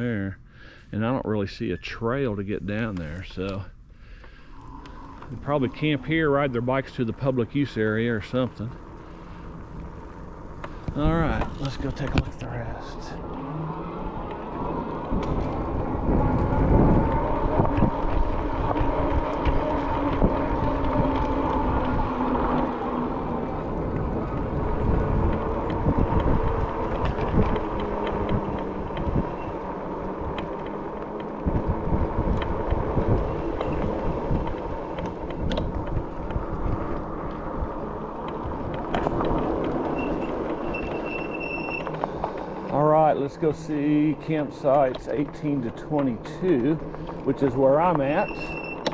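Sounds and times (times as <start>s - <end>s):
tyre noise: 4.8s - 48.9s
wind rushing over microphone: 10.8s - 48.9s.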